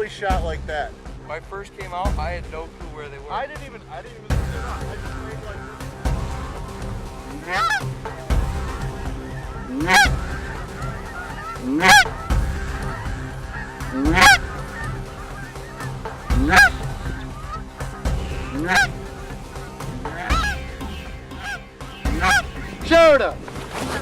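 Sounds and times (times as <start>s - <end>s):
goose call honking: 7.3s - 23.3s.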